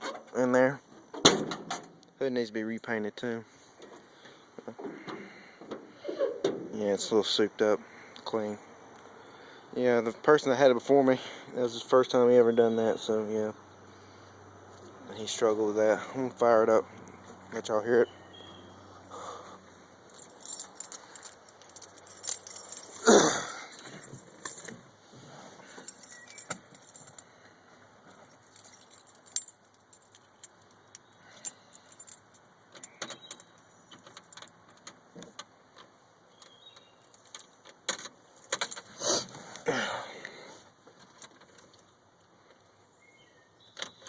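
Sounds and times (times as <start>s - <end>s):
keys jangling: 20.1s - 24.8s, 25.6s - 27.3s, 28.1s - 34.9s, 36.3s - 39.0s.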